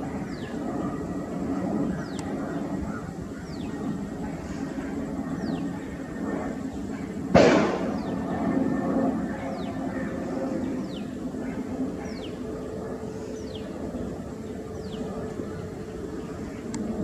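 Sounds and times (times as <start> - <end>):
distant jet engines rumbling: 0.0 - 17.0
sharp bang: 7.3 - 8.1.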